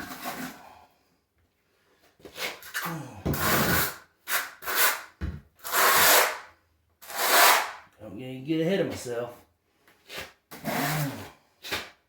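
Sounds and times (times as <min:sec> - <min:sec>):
trowel scraping mortar: 0:00.0 - 0:00.6, 0:02.3 - 0:06.4, 0:07.0 - 0:07.8, 0:10.0 - 0:12.0.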